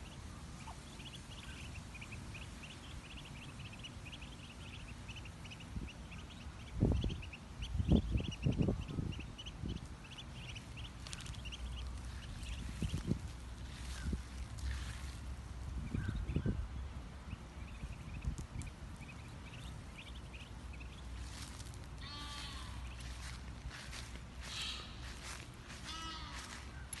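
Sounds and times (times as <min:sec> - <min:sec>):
ducklings peeping: 0:00.0 - 0:27.0.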